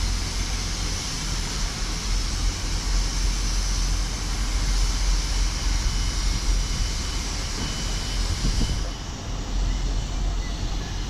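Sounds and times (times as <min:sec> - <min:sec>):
train engine rumble: 0:00.0 - 0:11.0
wind buffeting microphone: 0:05.8 - 0:11.0.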